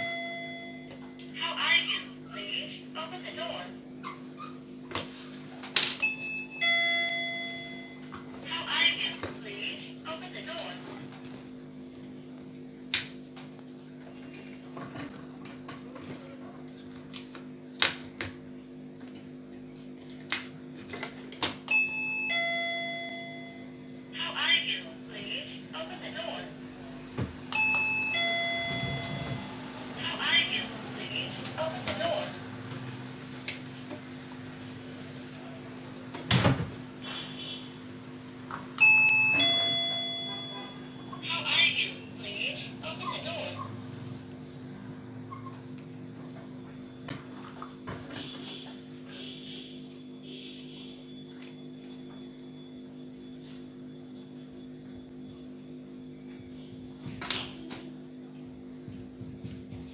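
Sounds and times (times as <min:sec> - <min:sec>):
two-tone electronic doorbell chime: 0:00.0 - 0:01.4, 0:06.0 - 0:08.3, 0:21.7 - 0:24.2, 0:27.5 - 0:29.9, 0:38.8 - 0:41.2
steady low hum: 0:00.0 - 0:59.9.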